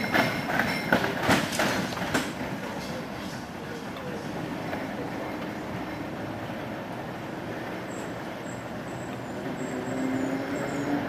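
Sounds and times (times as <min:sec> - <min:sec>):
tram rumbling on rails: 0:00.0 - 0:11.0.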